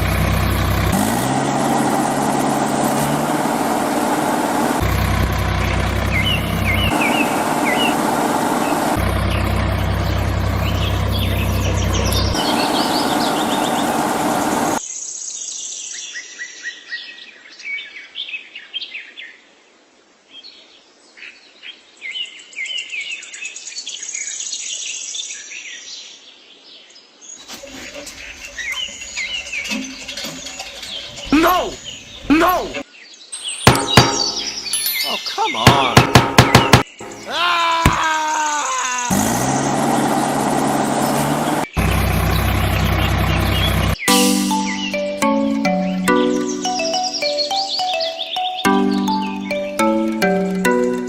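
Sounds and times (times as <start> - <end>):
birds chirping: 0.0 - 14.8, 27.3 - 51.0
small motor humming: 2.3 - 14.8.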